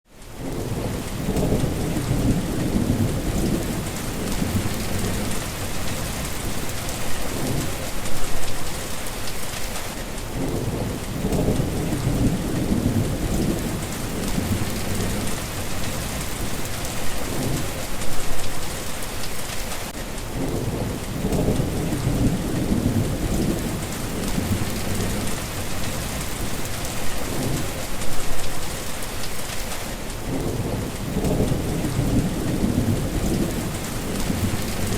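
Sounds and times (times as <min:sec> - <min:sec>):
heavy rain: 0:00.1 - 0:34.9
rolling thunder: 0:00.4 - 0:08.8, 0:10.3 - 0:18.5, 0:20.3 - 0:28.5, 0:30.2 - 0:34.9.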